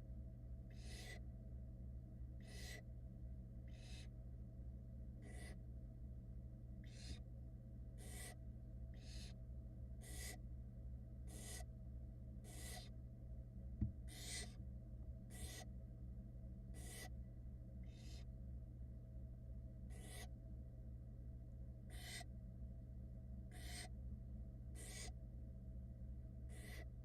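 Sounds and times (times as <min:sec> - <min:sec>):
steady low hum: 0:00.0 - 0:27.0
owl chicks hissing calls: 0:00.7 - 0:01.2, 0:02.4 - 0:02.9, 0:03.7 - 0:04.2, 0:05.2 - 0:05.6, 0:06.8 - 0:07.2, 0:08.0 - 0:09.4, 0:10.0 - 0:10.4, 0:11.2 - 0:11.7, 0:12.4 - 0:13.0, 0:14.0 - 0:14.6, 0:15.3 - 0:15.7, 0:16.7 - 0:17.2, 0:17.8 - 0:18.3, 0:19.9 - 0:20.3, 0:21.8 - 0:22.3, 0:23.5 - 0:24.0, 0:24.8 - 0:25.2, 0:26.5 - 0:27.0
brief knock: 0:13.8 - 0:14.0.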